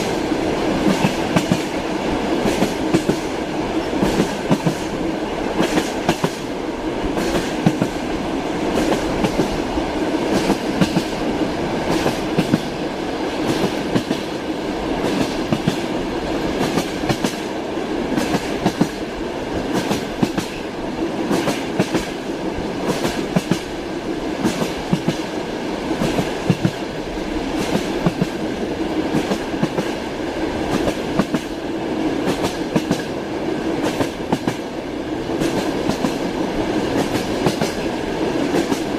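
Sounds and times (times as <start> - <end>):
rumble of moving railway car: 0.0 - 38.9
train wheels clacking over joints: 35.4 - 38.9.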